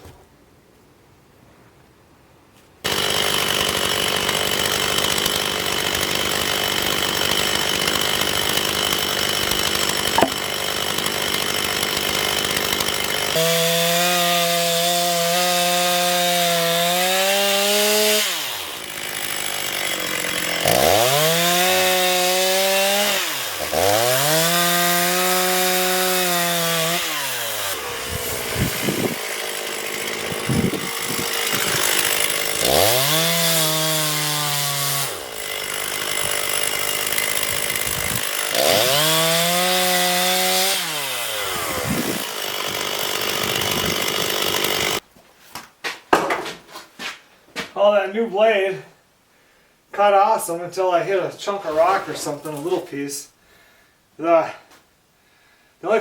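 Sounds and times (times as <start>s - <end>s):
chainsaw cutting wood: 2.8s - 45.1s.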